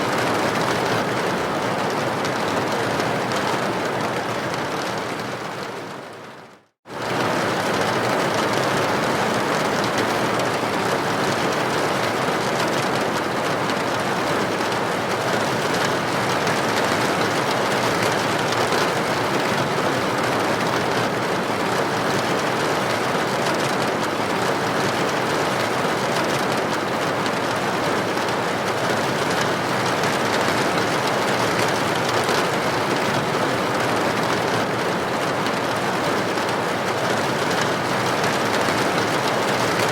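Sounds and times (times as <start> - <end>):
rain pattering on window: 0.0 - 39.9.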